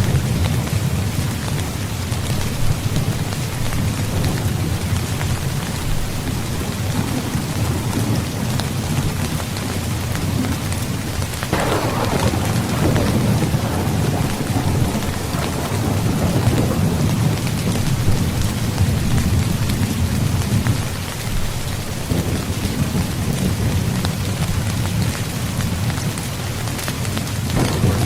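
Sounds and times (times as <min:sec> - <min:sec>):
heavy rain: 0:00.0 - 0:28.0
sharp thunderclap: 0:11.5 - 0:19.4, 0:27.6 - 0:28.0
rolling thunder: 0:11.5 - 0:20.7, 0:27.6 - 0:28.0.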